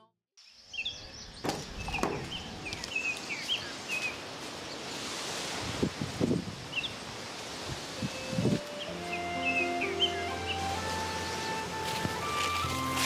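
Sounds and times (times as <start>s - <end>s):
small birds chirping: 0.4s - 4.9s, 6.4s - 7.0s, 8.0s - 12.7s.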